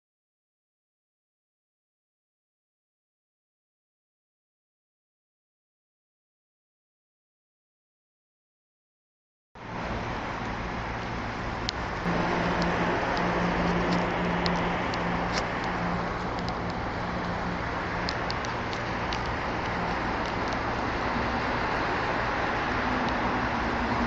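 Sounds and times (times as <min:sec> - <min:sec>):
low engine hum: 0:09.6 - 0:24.0
road and tyre noise: 0:09.6 - 0:24.0
sharp ticks: 0:12.4 - 0:21.8.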